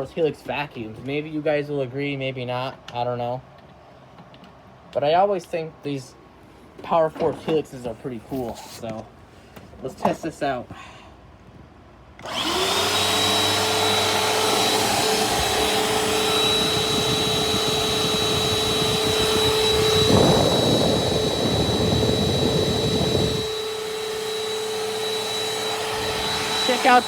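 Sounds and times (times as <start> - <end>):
vacuum cleaner humming: 12.2 - 27.0.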